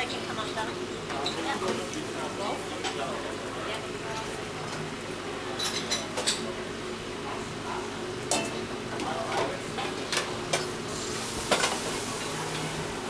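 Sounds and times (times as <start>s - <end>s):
hot oil sizzling: 10.5s - 13.0s.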